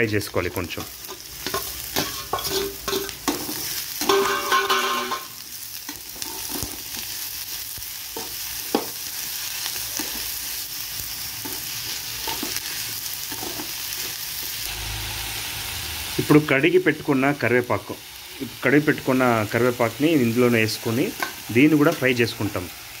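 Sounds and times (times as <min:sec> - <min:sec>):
vegetables sizzling in oil: 0:00.0 - 0:23.0
metal spoon scraping pan: 0:00.8 - 0:05.3
spoon knocking on pan: 0:04.0 - 0:05.3.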